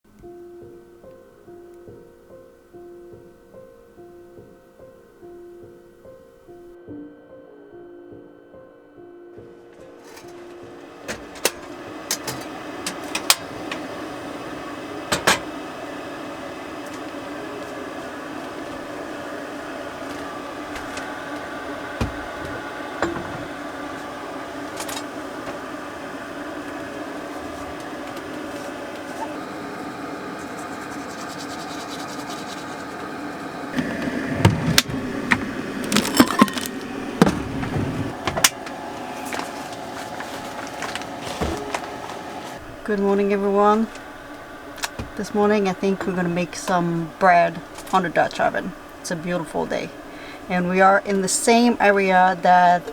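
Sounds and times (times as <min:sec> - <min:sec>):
steady mechanical hum: 0:10.1 - 0:52.9.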